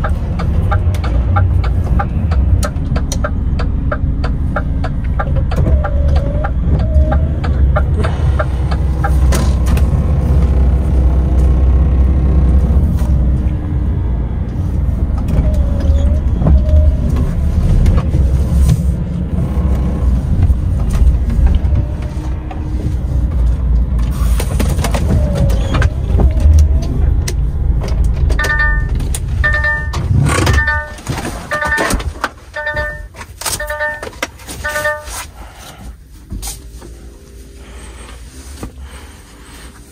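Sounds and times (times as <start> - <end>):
road noise: 0.0 - 39.9
truck diesel engine droning: 0.0 - 39.9
repeating electronic beep: 28.4 - 32.0, 32.6 - 35.2.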